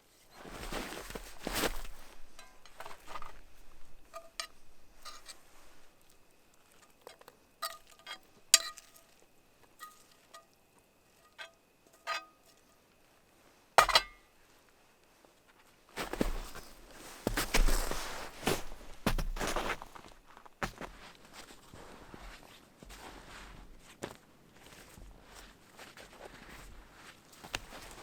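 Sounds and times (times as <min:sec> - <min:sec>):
metal cookware clinking: 0:02.4 - 0:03.0, 0:04.0 - 0:05.4, 0:07.6 - 0:09.0, 0:11.2 - 0:12.4, 0:13.8 - 0:14.2.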